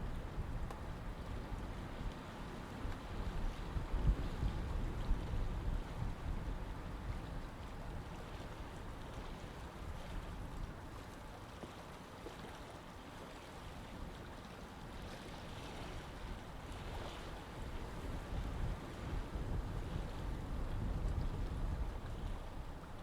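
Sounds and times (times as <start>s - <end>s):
water rushing in canal: 0.0s - 23.0s
low wind rumble: 17.7s - 23.0s.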